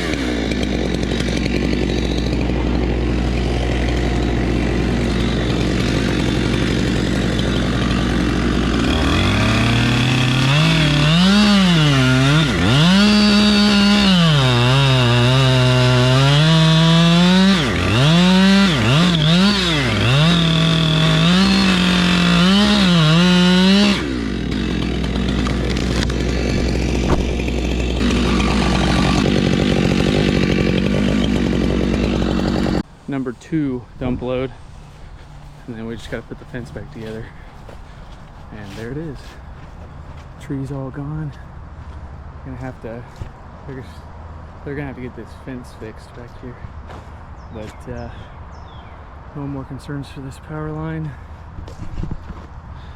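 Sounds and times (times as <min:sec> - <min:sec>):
chainsaw revving: 0:00.0 - 0:32.9.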